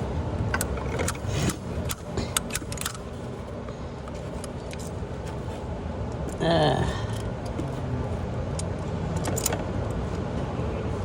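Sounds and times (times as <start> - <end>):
low workshop hum: 0.0 - 11.0
metallic clicks of hand tools: 0.5 - 3.0.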